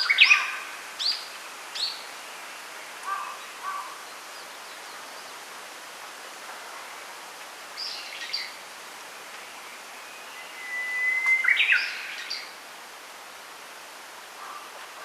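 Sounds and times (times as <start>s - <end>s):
wind rustling in bamboo: 0.0s - 15.0s
songbird singing whistle phrase: 10.2s - 12.2s.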